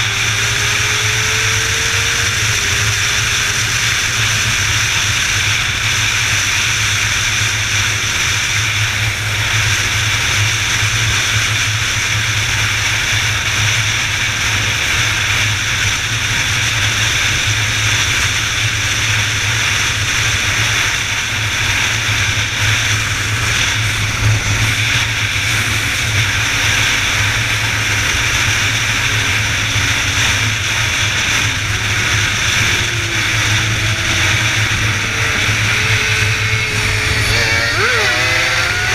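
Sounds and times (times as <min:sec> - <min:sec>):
faint rising engine tones: 0:00.0 - 0:06.3, 0:21.0 - 0:38.9
low hum: 0:00.0 - 0:38.9
vehicle road and wind noise: 0:00.0 - 0:38.9.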